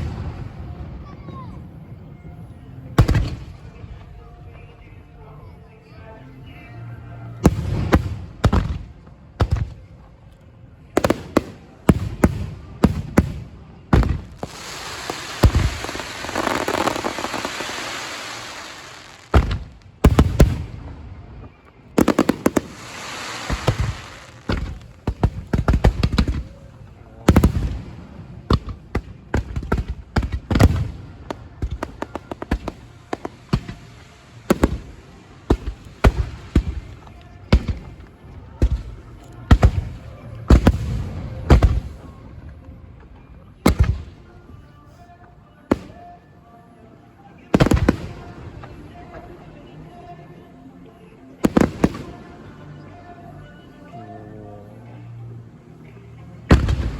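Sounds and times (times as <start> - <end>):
fireworks exploding: 0.0 - 1.6, 3.0 - 4.1, 7.4 - 9.8, 11.0 - 26.7, 27.3 - 42.5, 43.6 - 44.2, 47.5 - 49.4, 51.4 - 52.4, 56.5 - 56.9.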